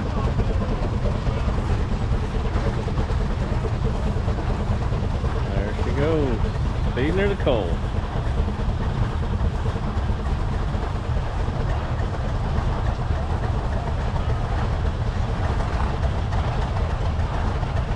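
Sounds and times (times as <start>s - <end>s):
steam traction engine rumbling: 0.0s - 17.9s.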